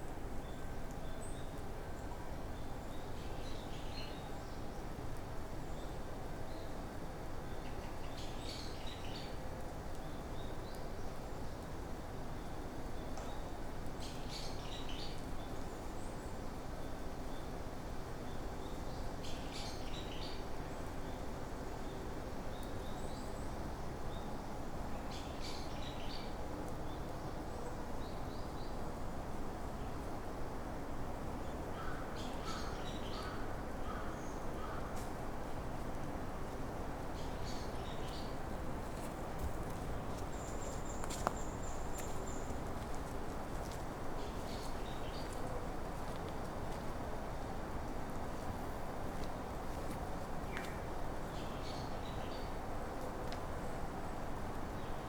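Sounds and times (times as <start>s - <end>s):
low rushing background noise: 0.0s - 55.0s
songbird singing: 40.1s - 42.9s.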